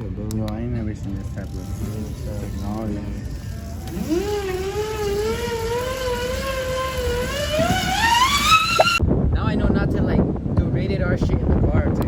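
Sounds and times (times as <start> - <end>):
electric bike motor whining: 1.0 - 9.0.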